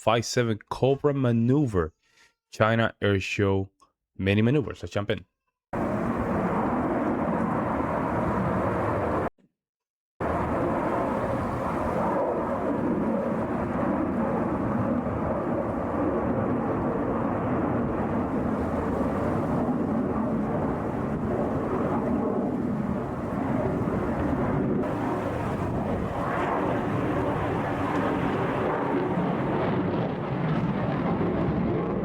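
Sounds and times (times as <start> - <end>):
fighter jet engine roar: 5.8 - 9.3, 10.2 - 32.0.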